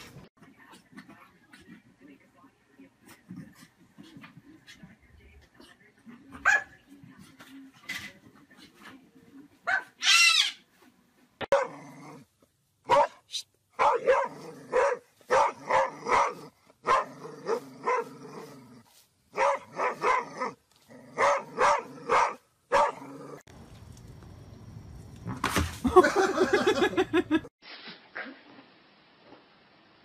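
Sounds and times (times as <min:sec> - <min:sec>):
large dog barking loudly: 0:11.5 - 0:11.8, 0:12.9 - 0:13.2, 0:13.8 - 0:18.2, 0:19.3 - 0:23.1
another dog barking rapidly: 0:12.9 - 0:13.2, 0:13.8 - 0:18.1.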